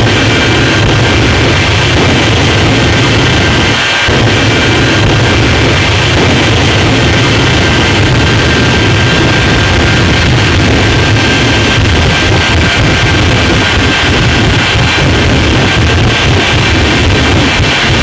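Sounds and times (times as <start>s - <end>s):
high jet whine: 0.0s - 18.0s
jet engine running: 0.0s - 18.0s.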